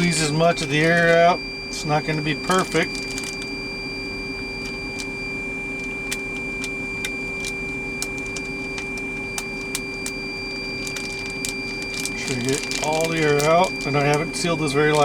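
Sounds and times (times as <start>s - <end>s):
steady background hum: 0.0s - 15.0s
plastic bag crinkling: 0.7s - 1.2s, 2.4s - 3.5s, 10.8s - 15.0s.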